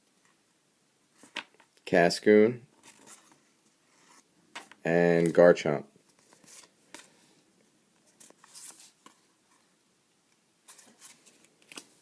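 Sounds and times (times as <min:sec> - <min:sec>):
cards rustling and tapping: 0:10.7 - 0:12.0.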